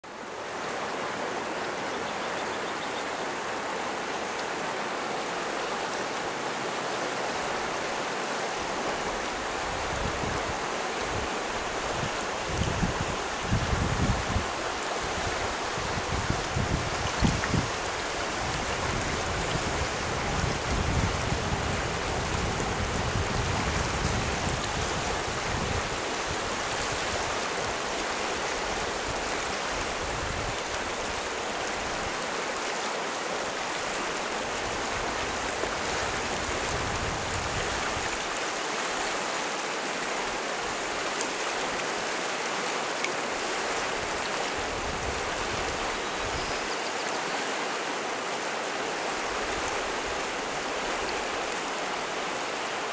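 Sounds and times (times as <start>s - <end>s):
river rushing: 0.0s - 52.9s
wind rumble on microphone: 9.6s - 27.8s, 28.6s - 31.1s, 34.6s - 38.2s, 44.0s - 46.5s.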